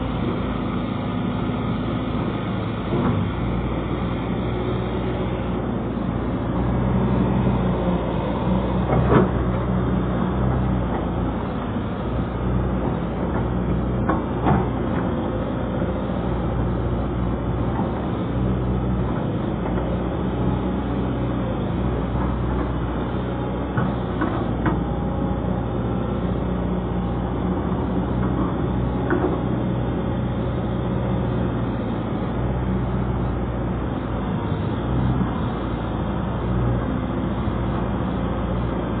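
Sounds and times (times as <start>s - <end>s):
excavator diesel engine running: 0.0s - 39.0s.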